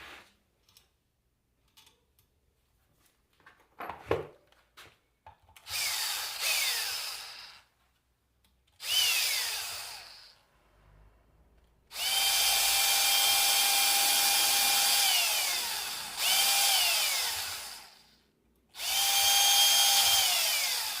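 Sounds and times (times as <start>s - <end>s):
power drill whining: 5.6s - 7.7s, 8.8s - 10.5s, 11.9s - 21.0s.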